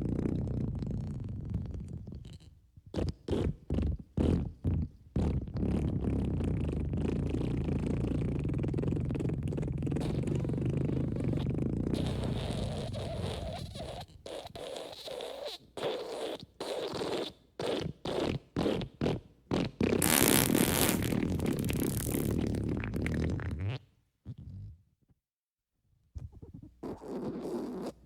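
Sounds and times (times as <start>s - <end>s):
fart sound effects: 10.0s - 23.8s.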